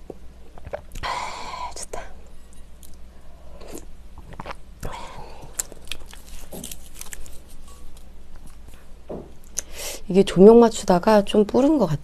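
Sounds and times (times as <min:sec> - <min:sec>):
person chewing: 0:00.0 - 0:01.1, 0:02.8 - 0:09.7.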